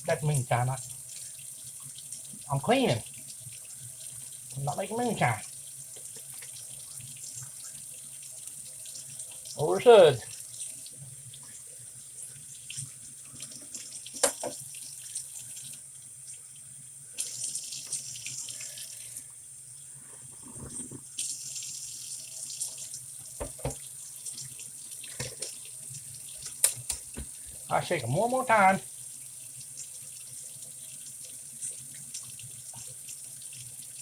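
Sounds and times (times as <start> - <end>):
water running and splashing in sink: 0.0 - 34.0
sharp knocks: 23.4 - 23.8.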